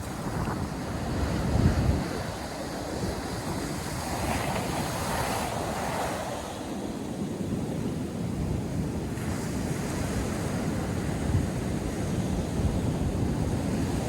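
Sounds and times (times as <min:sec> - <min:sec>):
surf breaking on beach: 0:00.0 - 0:06.7
wind buffeting microphone: 0:00.0 - 0:14.0.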